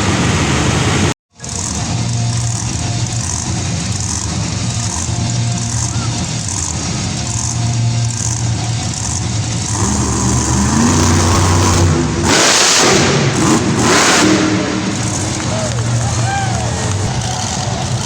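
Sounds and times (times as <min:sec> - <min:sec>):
monster truck engine revving: 0:00.0 - 0:18.0
loud rushing noise: 0:09.7 - 0:18.0.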